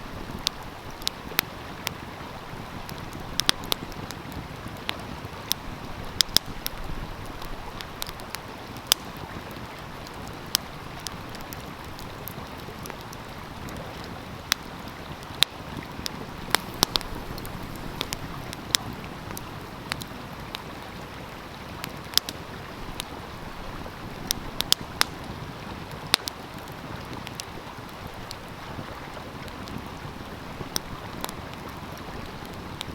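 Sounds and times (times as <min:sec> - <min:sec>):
stream flowing: 0:00.0 - 0:32.9
wood fire crackling and popping: 0:00.2 - 0:32.9.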